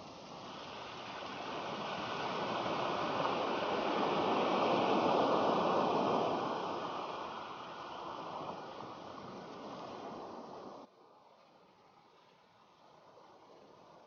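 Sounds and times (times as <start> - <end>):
sea surf rushing onto beach: 0.0 - 10.9.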